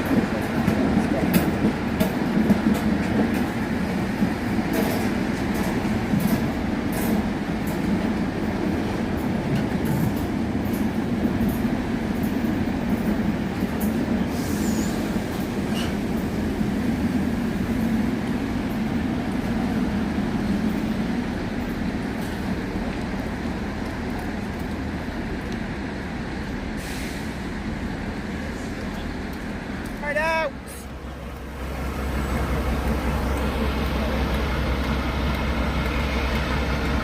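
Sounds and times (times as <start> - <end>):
diesel locomotive running: 0.0 - 37.0
wheels clicking over rail joints: 0.1 - 14.2, 31.8 - 37.0.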